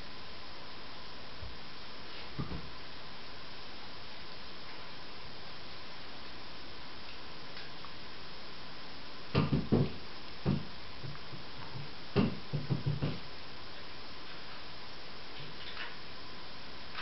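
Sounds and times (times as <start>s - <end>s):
light knocks and thumps: 2.3s - 2.8s, 9.3s - 13.2s.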